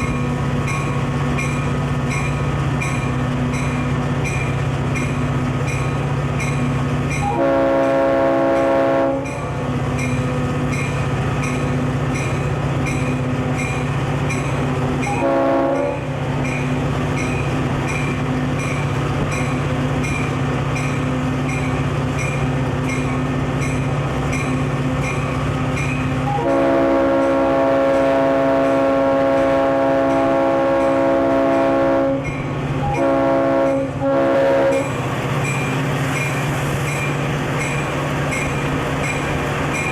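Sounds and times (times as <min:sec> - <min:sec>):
diesel locomotive running: 0:00.0 - 0:39.9
locomotive air horn: 0:07.2 - 0:09.4, 0:15.1 - 0:16.2, 0:26.2 - 0:34.9.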